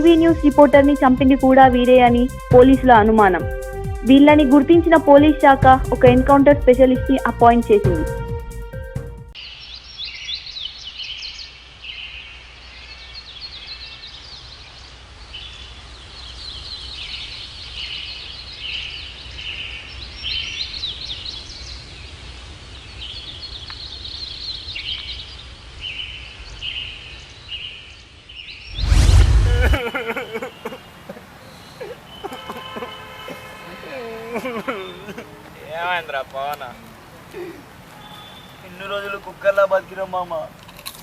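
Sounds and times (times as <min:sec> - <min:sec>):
birds chirping: 0:00.0 - 0:08.3, 0:08.9 - 0:40.7.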